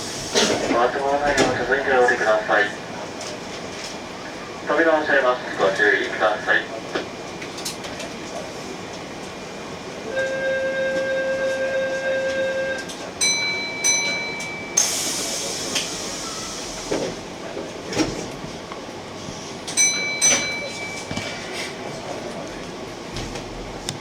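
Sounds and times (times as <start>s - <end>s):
ringing chime tones: 13.2s - 14.8s, 19.8s - 21.1s.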